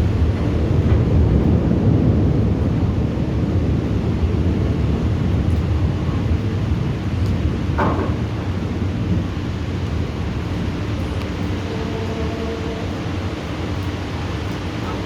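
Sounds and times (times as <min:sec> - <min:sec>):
thunder rumbling: 0:00.0 - 0:15.0.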